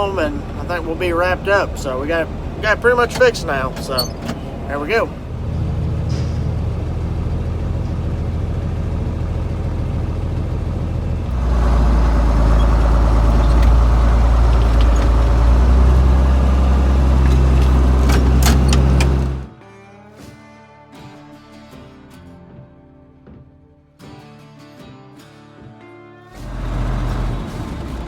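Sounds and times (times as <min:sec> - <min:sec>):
tractor engine running: 0:00.0 - 0:19.5.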